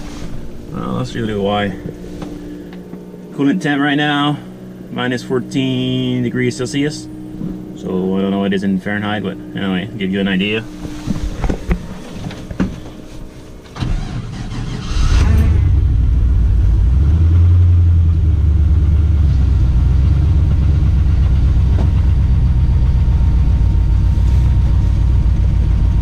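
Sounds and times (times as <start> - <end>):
engine starting and idling: 13.6 - 16.4.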